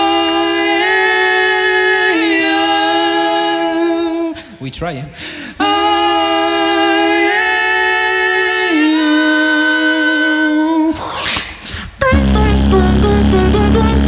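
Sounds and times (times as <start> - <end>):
beatboxers singing held notes: 5.6 - 14.0.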